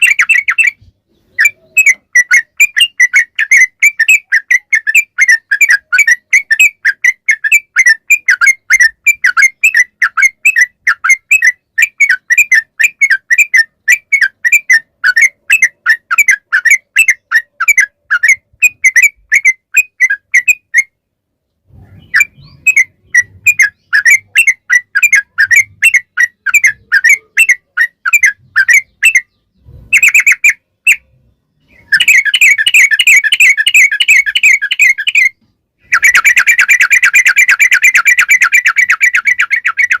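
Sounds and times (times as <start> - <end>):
bird singing bubbly whistles: 31.7 - 40.0.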